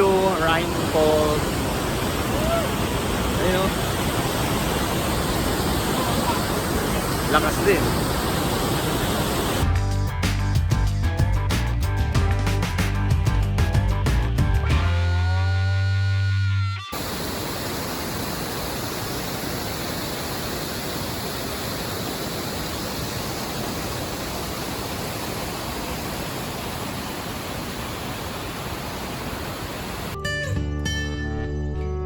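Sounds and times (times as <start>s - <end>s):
waterfall rushing: 0.0s - 9.7s, 16.9s - 30.2s.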